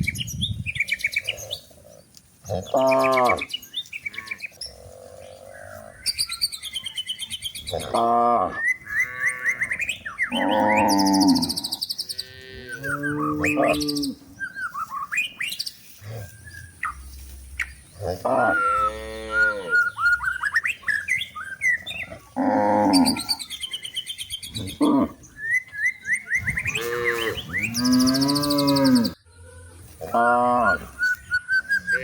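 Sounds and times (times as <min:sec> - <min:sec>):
birds chirping: 0:00.0 - 0:32.0
cows mooing: 0:02.5 - 0:03.5, 0:07.7 - 0:14.3, 0:18.0 - 0:20.0, 0:21.8 - 0:23.5, 0:24.5 - 0:25.2, 0:26.4 - 0:29.2, 0:30.0 - 0:31.0.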